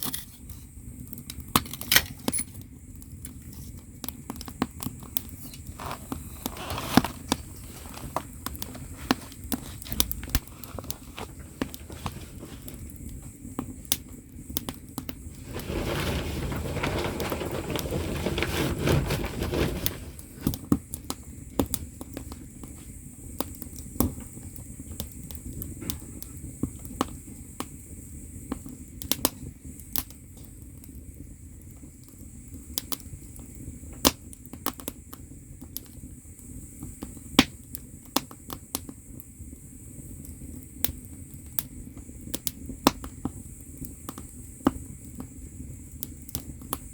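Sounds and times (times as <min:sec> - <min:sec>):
firewood crackling and popping: 0:00.0 - 0:46.9
rushing rustling noise: 0:05.6 - 0:12.9, 0:15.2 - 0:20.6.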